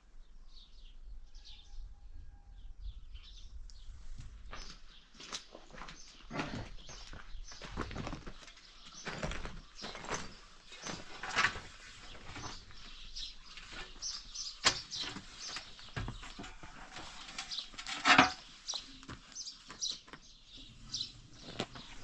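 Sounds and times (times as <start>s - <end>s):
small birds chirping: 0.2s - 22.0s.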